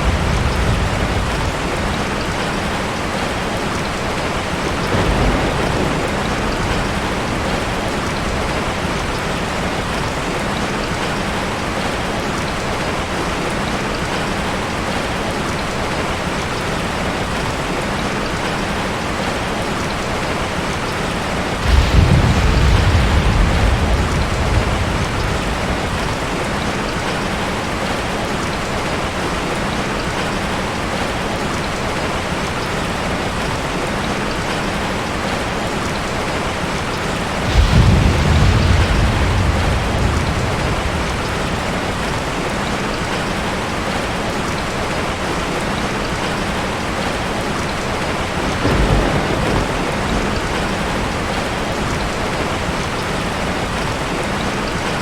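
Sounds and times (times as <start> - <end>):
thunder rolling: 0.0 - 3.2, 4.4 - 10.1, 21.2 - 27.1, 37.1 - 43.4, 48.4 - 53.1
heavy rain falling: 0.0 - 55.0.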